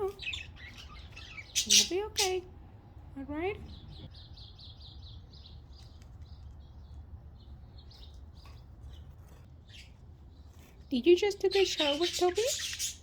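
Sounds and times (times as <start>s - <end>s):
budgies chirping: 0.0s - 2.5s, 3.6s - 10.0s, 10.9s - 13.0s.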